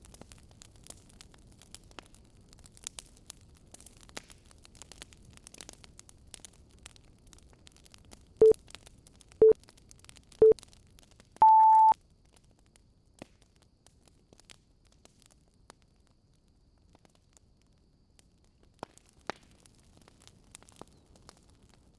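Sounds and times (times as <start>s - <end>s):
fireplace crackling and popping: 0.0s - 11.3s, 18.2s - 21.9s
timer beeps: 11.4s - 12.0s.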